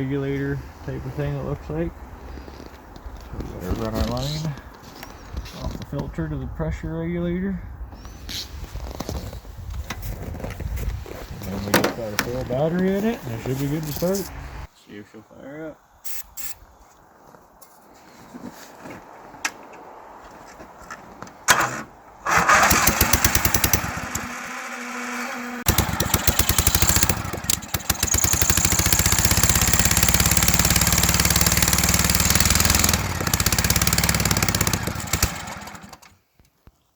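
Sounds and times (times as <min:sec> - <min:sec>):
lawn tractor engine starting and running: 0:21.5 - 0:36.2.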